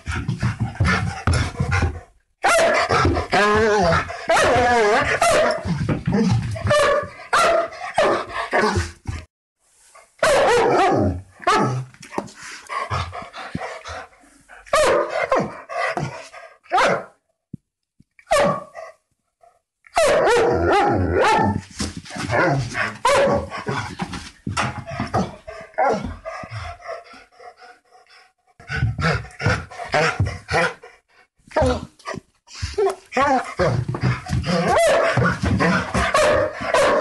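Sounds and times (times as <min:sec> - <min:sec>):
dogs barking: 0:02.4 - 0:03.3, 0:04.3 - 0:05.7, 0:06.6 - 0:08.8, 0:10.2 - 0:11.8, 0:14.7 - 0:16.0, 0:16.7 - 0:17.1, 0:18.3 - 0:18.8, 0:20.0 - 0:21.6, 0:23.0 - 0:23.6, 0:34.4 - 0:37.0.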